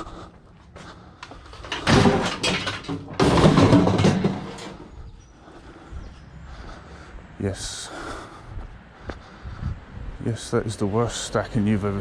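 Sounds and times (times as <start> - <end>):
heavy scrap clattering scrapes: 1.4 - 4.9.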